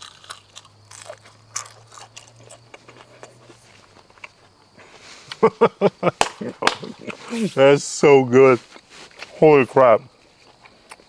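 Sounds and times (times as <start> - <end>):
man chewing crunchy shell: 0.0 - 4.8, 10.1 - 11.0
man laughing: 4.8 - 7.7.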